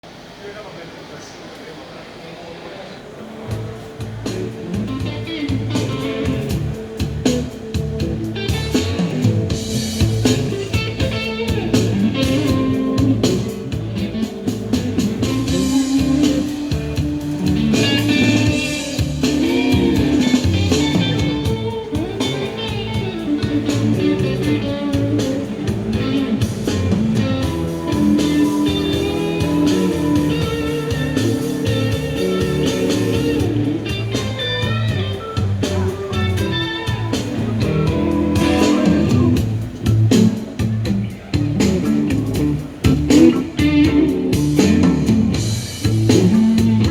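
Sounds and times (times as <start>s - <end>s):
guitar-led music over speakers: 3.5s - 46.9s.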